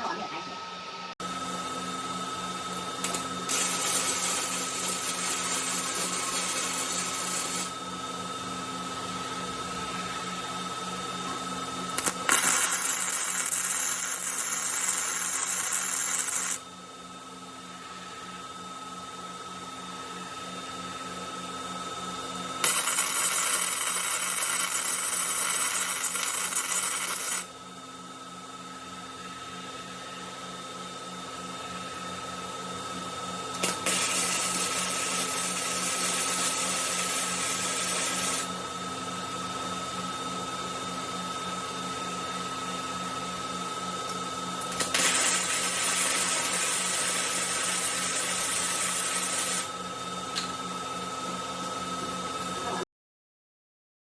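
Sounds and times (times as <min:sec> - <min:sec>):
electrical hum: 0:00.0 - 0:18.5
machine hum with high whine: 0:00.0 - 0:52.9
welding arc crackling and hissing: 0:03.0 - 0:07.8, 0:12.0 - 0:16.6, 0:22.6 - 0:27.5, 0:33.6 - 0:38.5, 0:44.6 - 0:49.7.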